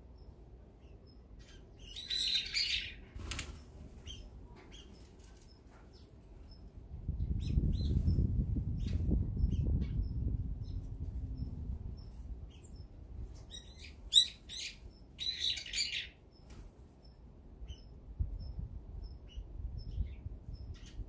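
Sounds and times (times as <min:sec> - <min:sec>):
harsh bird calls: 0:01.4 - 0:03.1, 0:13.6 - 0:16.2.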